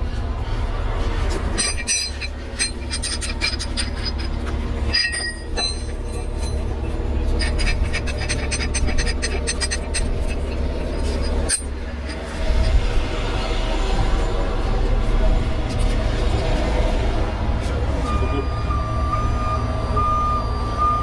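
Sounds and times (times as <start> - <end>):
heavy truck engine rumbling: 0.0 - 21.0
metal rigging clinking and squeaking: 1.2 - 13.0.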